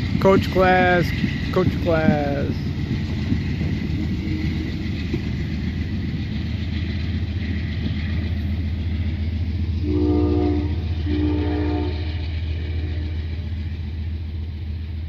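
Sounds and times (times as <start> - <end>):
train cars rumbling on rails: 0.0 - 15.0
train horn blasts: 9.8 - 13.5.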